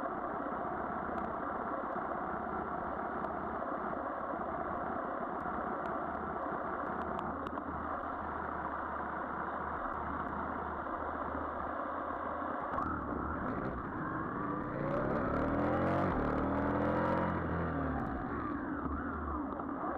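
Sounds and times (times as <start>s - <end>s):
road and wind noise: 2.1s - 19.9s
engine revving up: 12.8s - 18.9s
motorcycle engine running: 12.8s - 19.3s.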